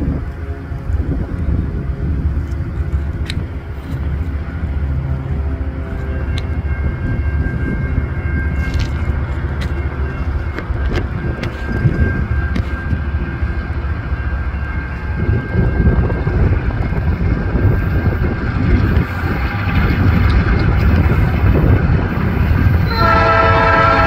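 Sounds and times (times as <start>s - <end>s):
diesel locomotive rumble: 0.0s - 24.0s
locomotive air horn chord: 22.8s - 24.0s.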